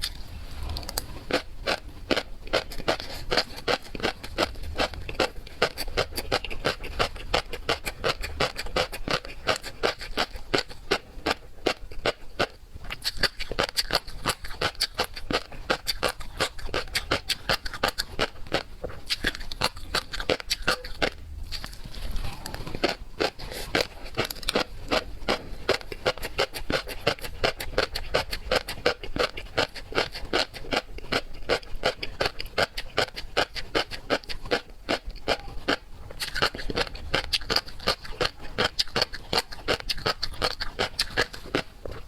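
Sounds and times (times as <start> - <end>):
person chewing seafood: 0.0 - 42.0.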